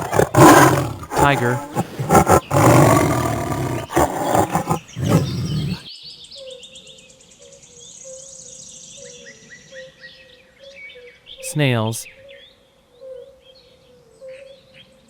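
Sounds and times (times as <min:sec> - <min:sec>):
tiger roaring and growling: 0:00.0 - 0:05.8
small birds chirping: 0:00.0 - 0:05.9.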